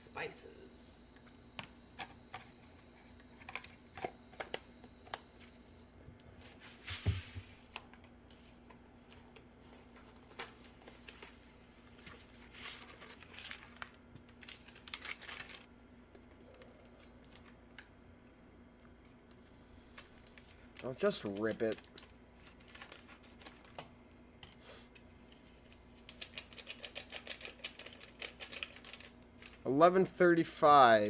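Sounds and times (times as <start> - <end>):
packet crinkling: 13.2 - 15.6
packet tearing open: 14.4 - 15.6.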